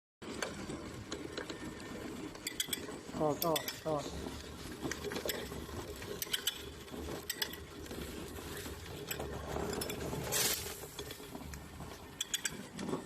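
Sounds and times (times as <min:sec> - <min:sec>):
grain grinder motor hum: 0:00.2 - 0:13.0
sharp clicks and clinks: 0:09.0 - 0:13.0.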